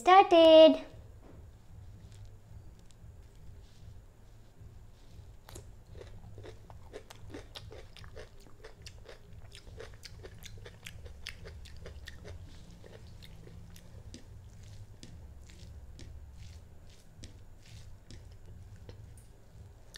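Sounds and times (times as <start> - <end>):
chewing crispy food crunches: 5.4 - 19.2.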